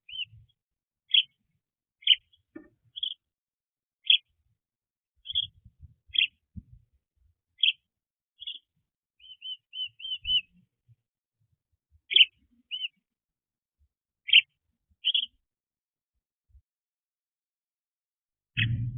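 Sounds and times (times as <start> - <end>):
small birds chirping: 0.0 - 3.3, 4.0 - 4.5, 5.2 - 6.8, 7.5 - 10.8, 12.0 - 13.1, 14.2 - 15.5.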